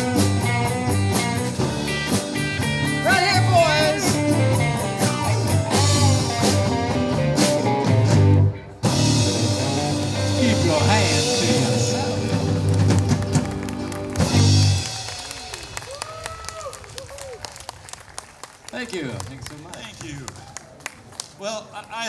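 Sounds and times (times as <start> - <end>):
electric guitar bending notes: 0.0 - 14.9
rock band playing blues-rock: 0.0 - 15.4.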